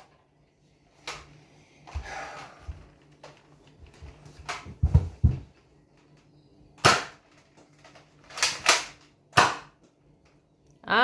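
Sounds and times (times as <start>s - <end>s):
foam dart blaster pops: 6.8s - 7.2s, 8.7s - 9.8s
toy blaster handling knocks: 6.8s - 7.4s, 8.2s - 9.9s.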